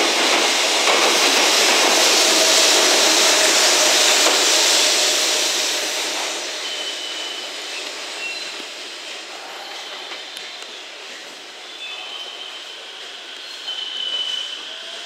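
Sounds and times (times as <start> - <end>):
freight train rolling past: 0.0 - 15.0
faint high squeal: 6.4 - 7.6, 11.7 - 15.0.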